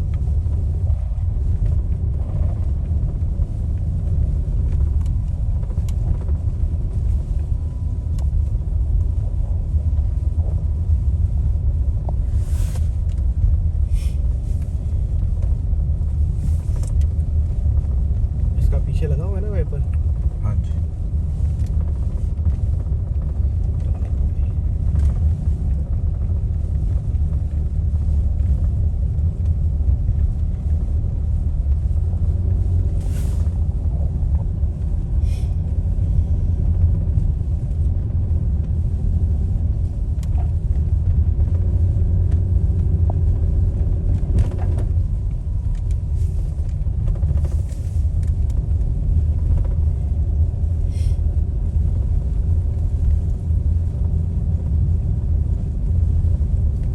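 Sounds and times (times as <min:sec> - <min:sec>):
car rumbling on road: 0:00.0 - 0:56.9
brief hisses: 0:33.0 - 0:33.5.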